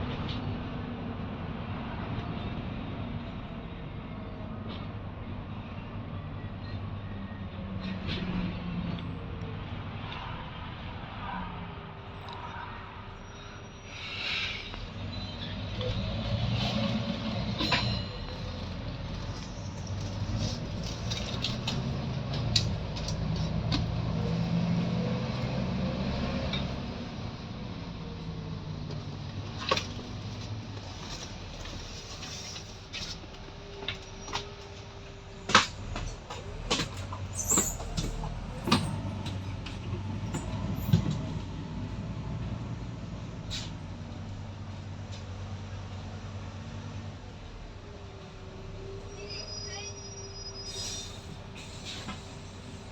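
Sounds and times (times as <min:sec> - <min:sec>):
bus diesel engine running: 0:11.9 - 0:52.9.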